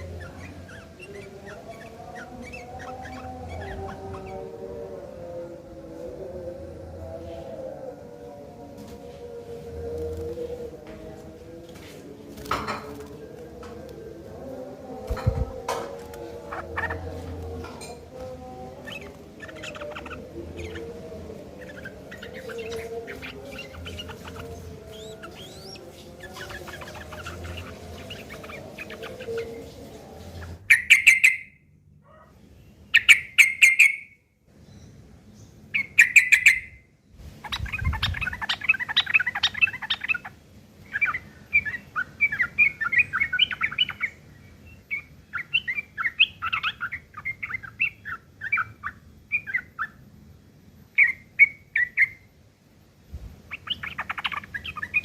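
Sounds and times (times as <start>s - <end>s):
rough rapid bird chattering: 0.0s - 4.4s, 18.8s - 21.0s, 21.6s - 29.5s.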